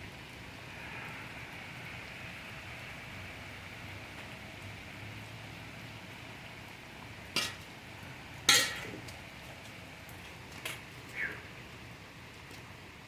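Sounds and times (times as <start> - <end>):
steady rain hiss: 0.0 - 13.0.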